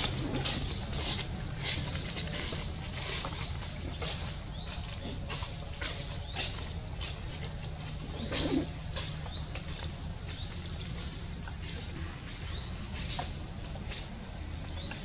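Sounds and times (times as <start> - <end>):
bird chirping: 0.0 - 14.0, 14.6 - 15.0
branches and leaves rustling: 0.0 - 15.0.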